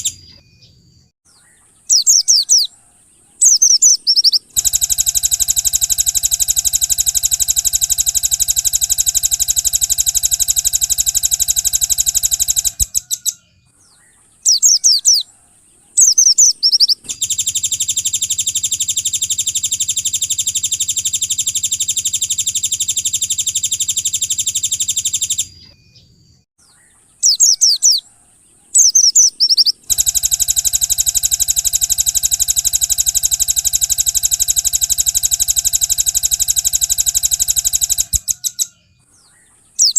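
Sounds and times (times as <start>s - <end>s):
swooping bird chirps: 0.0s - 39.9s
songbird buzzing trills: 3.4s - 13.4s, 28.8s - 38.7s.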